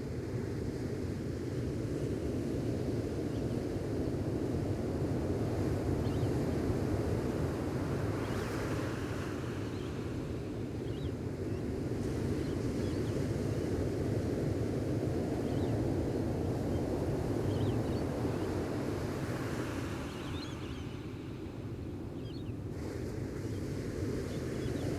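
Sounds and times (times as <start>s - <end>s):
ocean waves on a beach: 0.0s - 24.9s
faint bird chirps: 6.0s - 6.4s, 8.2s - 11.7s, 17.4s - 18.5s, 19.4s - 21.4s, 22.2s - 22.6s.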